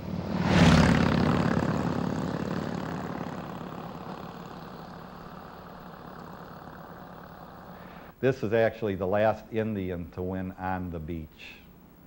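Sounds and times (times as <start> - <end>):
motorcycle engine passing: 0.0 - 8.1.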